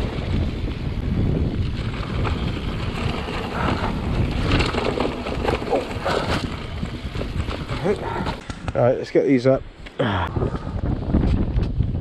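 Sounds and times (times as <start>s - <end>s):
bike clicks and rattles: 0.0s - 9.0s
wind buffeting microphone: 0.0s - 12.0s.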